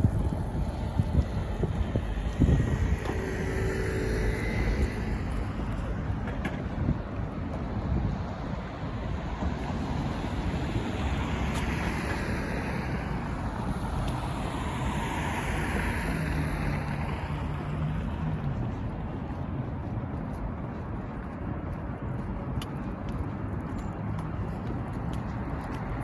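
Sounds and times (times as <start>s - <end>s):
motor vehicle passing: 0.0s - 6.4s
city traffic noise: 0.0s - 26.0s
wind buffeting microphone: 0.0s - 26.0s.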